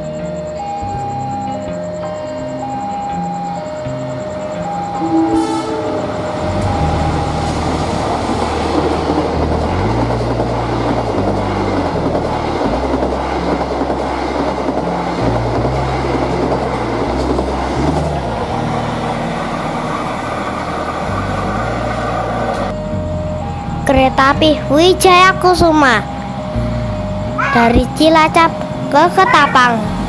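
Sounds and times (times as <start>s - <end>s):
train wheels rushing on rails: 3.8s - 30.0s.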